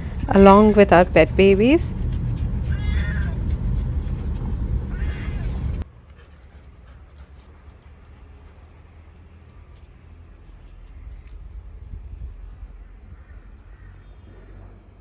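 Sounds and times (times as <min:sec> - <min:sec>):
car road noise rumble: 0:00.0 - 0:05.9
cat meowing: 0:02.6 - 0:03.5, 0:04.9 - 0:05.8.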